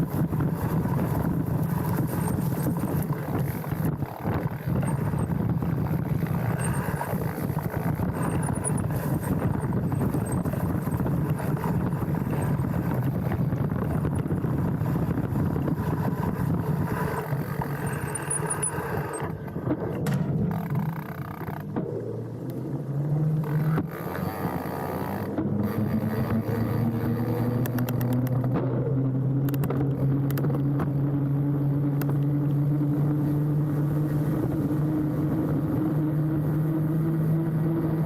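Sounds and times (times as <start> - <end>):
bike frame rattling: 0.0 - 22.0
tyres rolling over dirt: 0.0 - 24.4.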